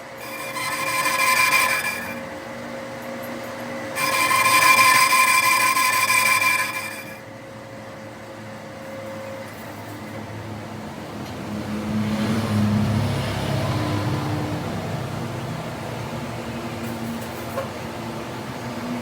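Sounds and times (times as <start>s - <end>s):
low mechanical hum: 0.0s - 19.0s
machinery screeching: 0.1s - 2.3s, 3.9s - 7.3s.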